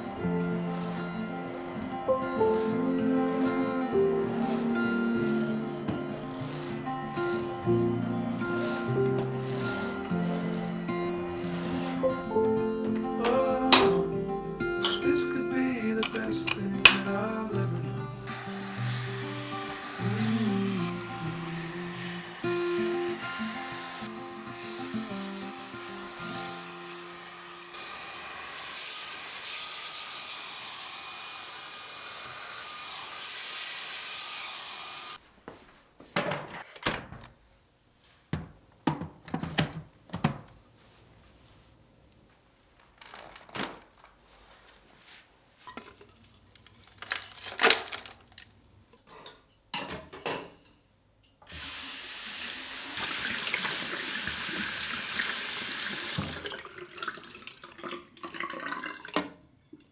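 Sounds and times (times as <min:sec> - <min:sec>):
tap water running into sink: 0:01.3 - 0:35.2, 0:51.5 - 0:59.4
knocks and clatter of handling: 0:14.8 - 0:15.1, 0:36.0 - 0:37.4, 0:38.3 - 0:40.7, 0:42.8 - 0:45.0, 0:45.6 - 0:50.8.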